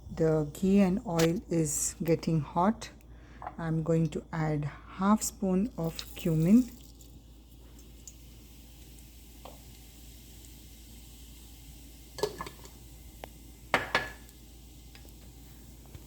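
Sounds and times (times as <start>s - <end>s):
seeds sizzling in oil: 5.8s - 16.0s.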